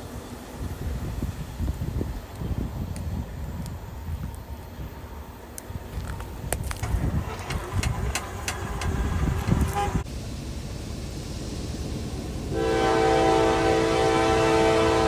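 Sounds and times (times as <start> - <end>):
locomotive air horn: 8.9 - 10.1, 12.5 - 15.0.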